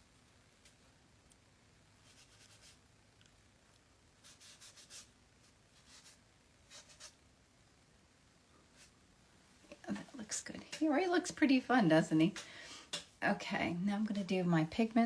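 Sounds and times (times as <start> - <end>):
scratchy rubbing on canvas: 2.0 - 2.8, 4.2 - 7.2.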